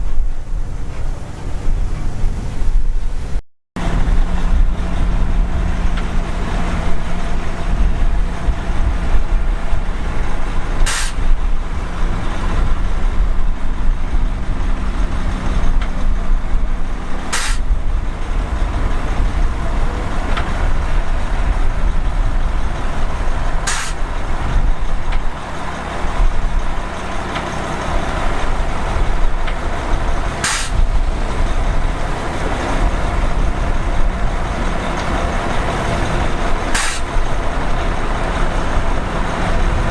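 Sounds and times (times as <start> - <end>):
diesel machinery rumbling: 0.0 - 39.9
short sharp hisses: 10.8 - 11.2, 17.3 - 17.7, 23.7 - 24.0, 30.4 - 30.8, 36.8 - 37.1.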